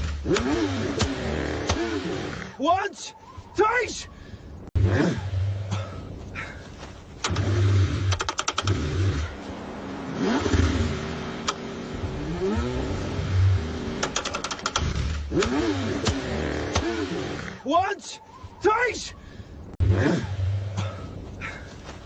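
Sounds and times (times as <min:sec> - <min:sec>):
car engine cranking and revving: 0:00.0 - 0:02.6, 0:04.7 - 0:06.1, 0:07.1 - 0:17.6, 0:19.7 - 0:21.3
rapid clicks: 0:08.1 - 0:08.8, 0:14.0 - 0:16.9.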